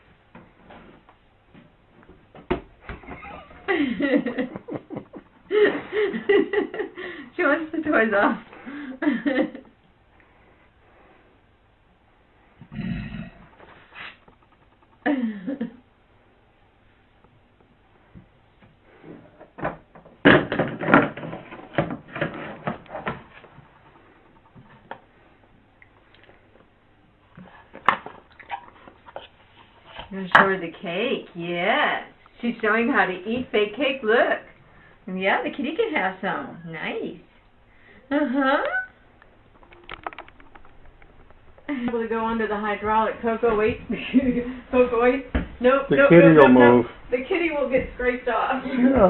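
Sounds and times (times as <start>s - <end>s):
person laughing and talking: 3.0s - 7.0s
objects knocking and scraping: 19.0s - 25.2s, 39.4s - 45.6s
faint rustling: 38.9s - 49.0s.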